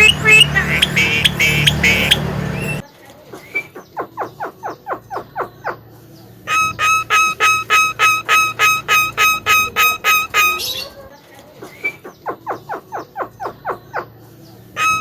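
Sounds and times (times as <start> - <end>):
bird calling: 0.0 - 2.8, 6.5 - 14.2, 14.8 - 15.0.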